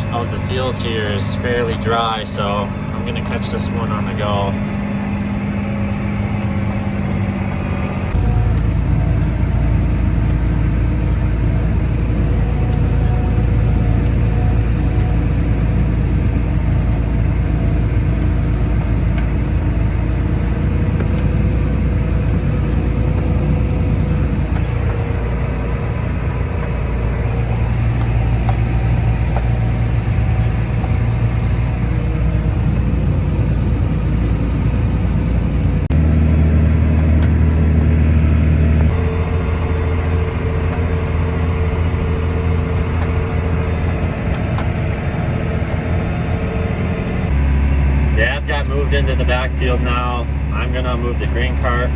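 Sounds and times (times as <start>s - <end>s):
tractor engine under load: 0.0s - 51.9s.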